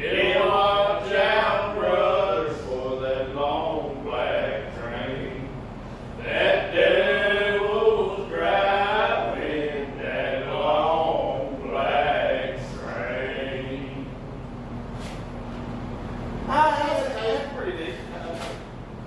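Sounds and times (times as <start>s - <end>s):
men singing together: 0.0s - 5.6s, 6.2s - 14.2s.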